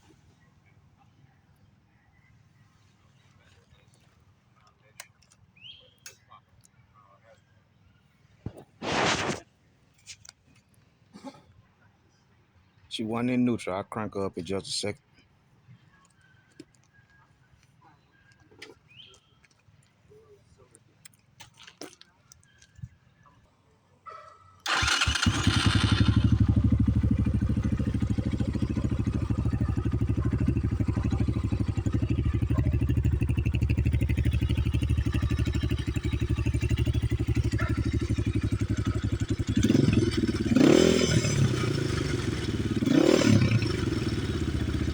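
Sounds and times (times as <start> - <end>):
dirt bike engine idling: 24.7 - 44.9
engine throttle blips: 24.7 - 44.9.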